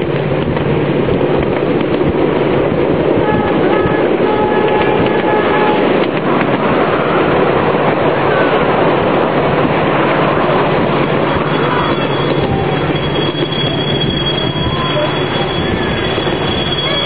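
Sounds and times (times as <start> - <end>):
train wheels rattling on rails: 0.0 - 17.0
train horn: 3.2 - 6.6.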